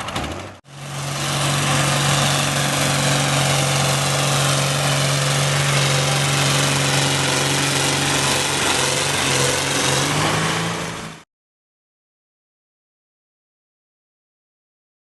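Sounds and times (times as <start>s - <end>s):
tractor engine running: 0.0s - 11.2s.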